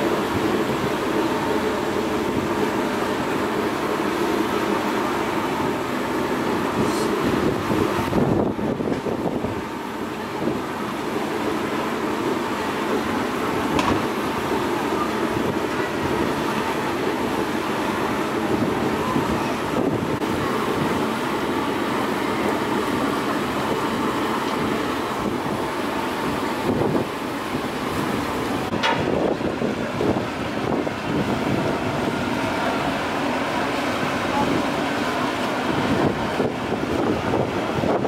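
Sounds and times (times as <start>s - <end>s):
ship engines rumbling: 0.0s - 38.0s
wind buffeting microphone: 6.6s - 10.8s, 15.2s - 22.2s, 23.4s - 33.3s, 33.9s - 38.0s.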